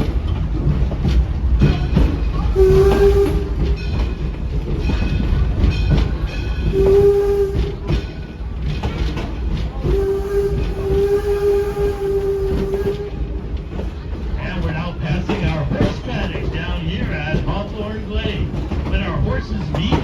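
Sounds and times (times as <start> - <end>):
train rumbling and clicking on rails: 0.0 - 20.0
steam locomotive whistle: 2.6 - 3.7, 6.6 - 8.0, 9.8 - 13.4.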